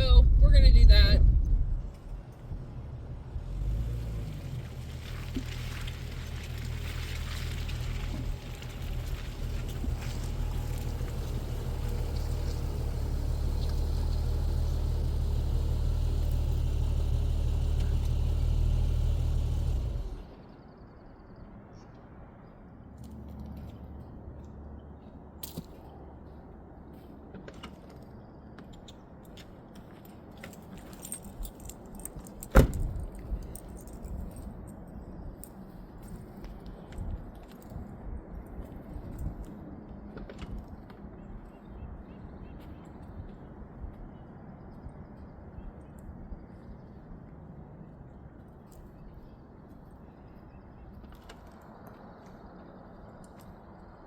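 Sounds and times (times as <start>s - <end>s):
car engine drone: 0.0s - 21.1s
road noise: 0.0s - 54.0s
small metallic jingles: 30.0s - 36.2s.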